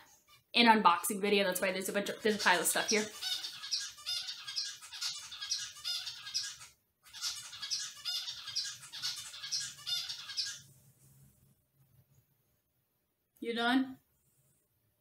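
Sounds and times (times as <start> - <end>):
pet bird squawking and chirping: 2.1 - 10.7.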